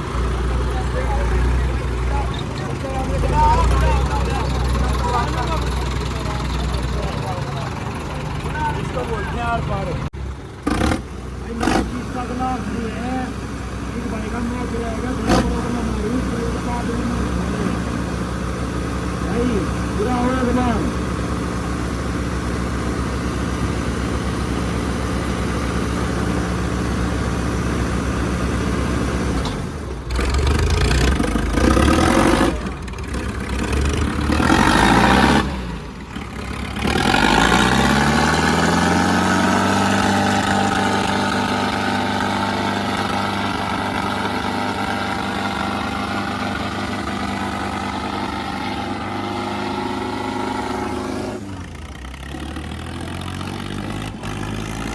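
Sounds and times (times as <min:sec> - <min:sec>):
diesel tractor engines revving: 0:00.0 - 0:54.9.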